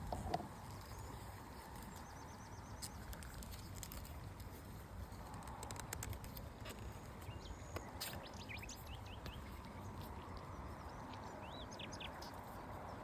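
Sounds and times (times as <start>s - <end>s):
low rumble of wind: 0.0s - 13.0s.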